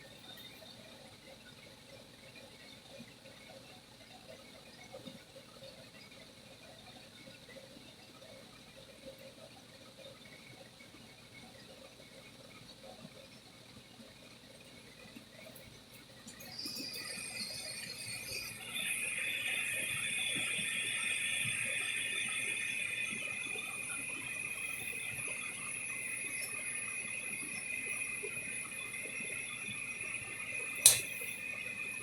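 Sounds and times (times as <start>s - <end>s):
gas furnace hissing: 16.3s - 32.0s
sharp click: 30.8s - 31.2s.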